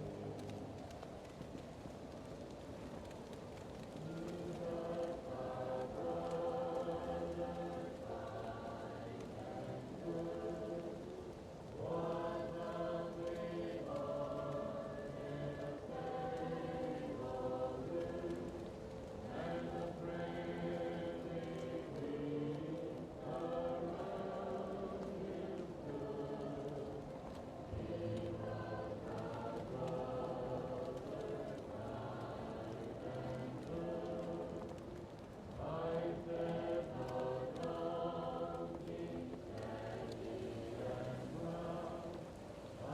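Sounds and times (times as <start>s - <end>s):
crackling fireplace: 0.0s - 42.9s
muffled choir singing: 0.0s - 42.9s.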